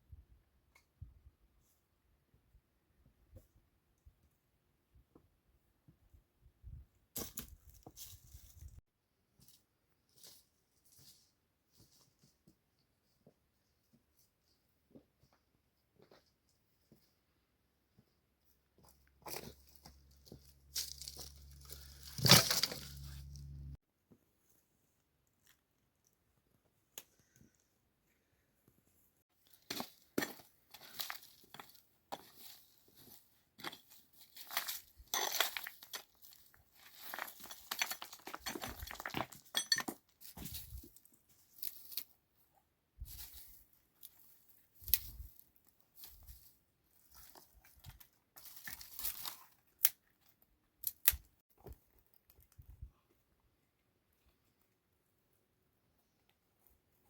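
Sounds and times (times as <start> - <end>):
crinkling and rustling: 18.4 - 23.8, 29.4 - 54.8
sharp clicks and clinks: 37.6 - 40.0.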